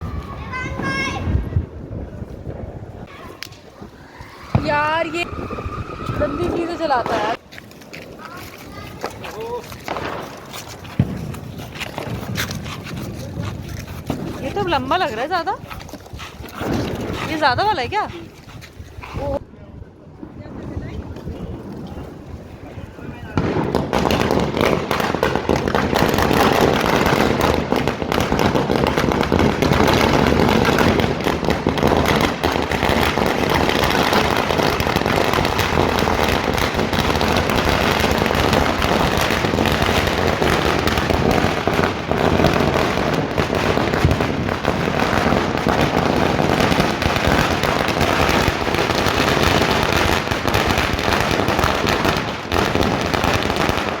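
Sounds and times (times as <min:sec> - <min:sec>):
firecracker string rattling bangs: 0:03.1 - 0:15.5.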